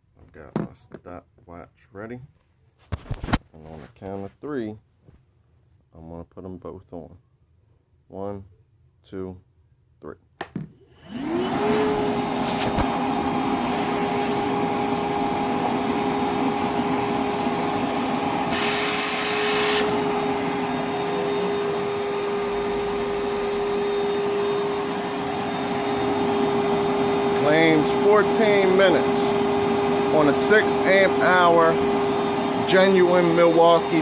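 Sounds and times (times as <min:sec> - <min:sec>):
vacuum motor whining: 0:11.0 - 0:34.0.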